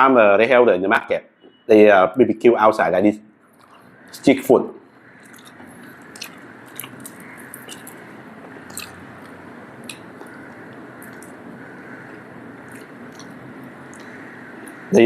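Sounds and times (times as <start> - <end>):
person chewing food: 3.5 - 3.9, 5.1 - 14.9
wet mouth clicks: 3.6 - 3.9, 5.2 - 11.4, 12.6 - 14.8.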